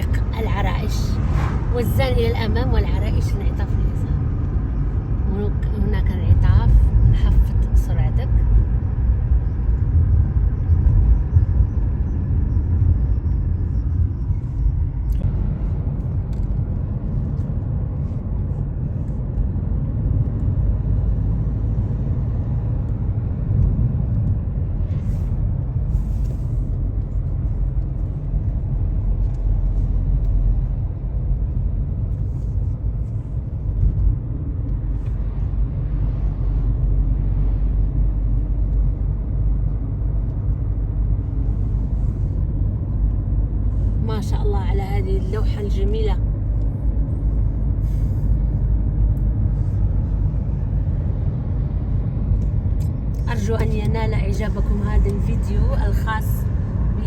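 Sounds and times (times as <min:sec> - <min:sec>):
car engine and tyre noise: 0:00.0 - 0:57.0.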